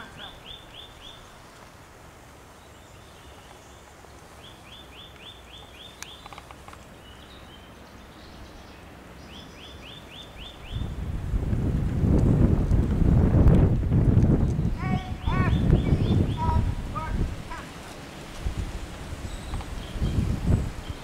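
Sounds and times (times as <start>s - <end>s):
small bird singing: 0.0s - 1.4s, 2.6s - 11.0s, 14.4s - 16.7s, 19.2s - 21.0s
outdoor background noise: 0.0s - 21.0s.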